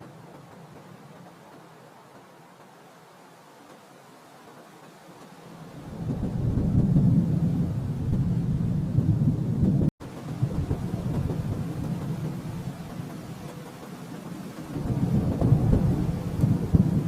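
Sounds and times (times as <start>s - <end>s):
rolling thunder: 5.7s - 17.0s.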